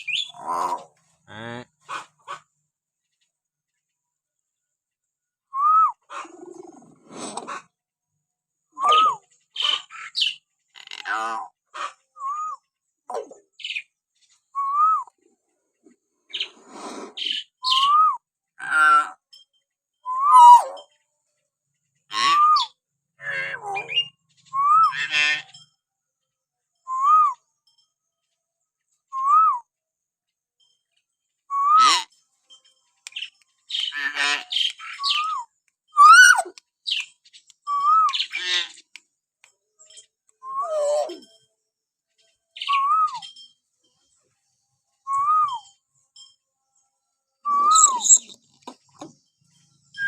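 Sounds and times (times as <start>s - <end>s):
harsh raspy bird calls: 0.0s - 3.2s, 8.8s - 14.4s, 16.3s - 18.0s, 18.6s - 19.4s, 20.1s - 20.9s, 22.0s - 25.8s, 31.5s - 32.2s, 33.1s - 39.0s, 47.5s - 49.2s
myna whistles: 5.5s - 6.0s, 20.1s - 20.7s, 40.4s - 41.2s, 45.1s - 45.7s, 47.5s - 48.3s.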